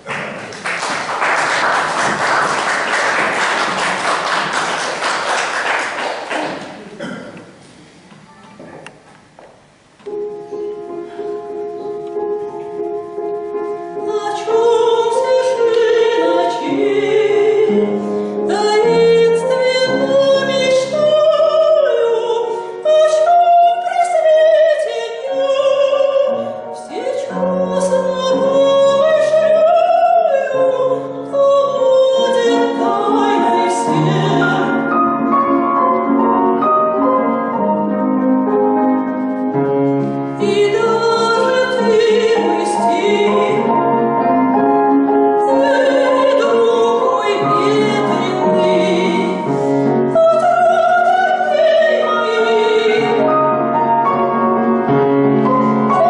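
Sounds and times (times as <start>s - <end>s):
piano accompaniment: 0.0s - 7.3s, 8.2s - 56.0s
woman singing operatically: 14.0s - 17.9s, 18.5s - 34.9s, 40.4s - 43.8s, 45.4s - 49.5s, 50.1s - 53.3s.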